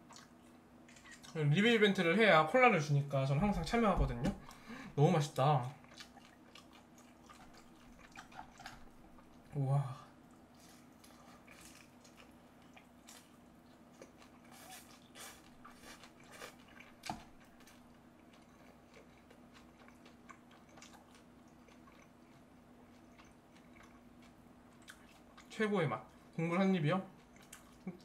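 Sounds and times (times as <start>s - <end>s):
chewing crunches and mouth sounds: 0.0s - 1.4s, 5.6s - 9.6s, 10.2s - 28.0s
faint steady hum: 0.0s - 28.0s.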